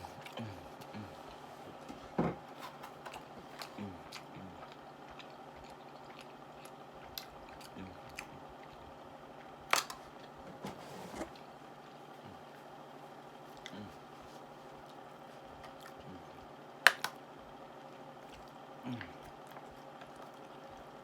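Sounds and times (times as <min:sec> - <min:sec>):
chewing with wet clicks: 0:00.1 - 0:01.4, 0:02.9 - 0:10.4, 0:13.5 - 0:13.8, 0:14.7 - 0:21.0.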